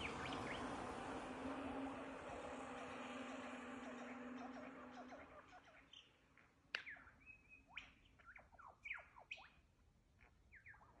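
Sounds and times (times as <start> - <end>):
birds whistling and chirping: 0.0 - 0.8, 2.0 - 6.1, 6.8 - 9.5.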